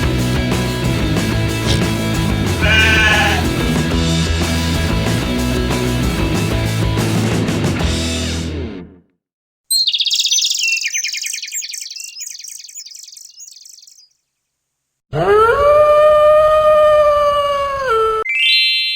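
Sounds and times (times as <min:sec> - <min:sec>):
long drawn-out animal call: 0:02.6 - 0:03.5
songbird chirps and trills: 0:09.7 - 0:14.6, 0:18.3 - 0:18.9.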